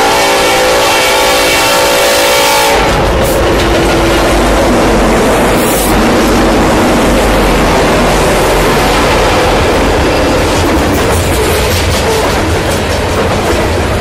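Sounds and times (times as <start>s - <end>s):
locomotive horn chord: 0.0s - 10.6s
locomotive engine rumble: 0.0s - 14.0s
wheel and rail noise: 0.0s - 14.0s.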